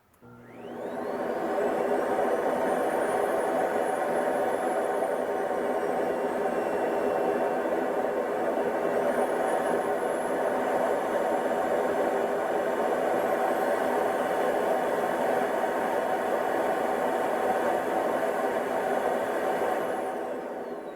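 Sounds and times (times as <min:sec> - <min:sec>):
cordless vacuum whirring: 0:00.1 - 0:20.9.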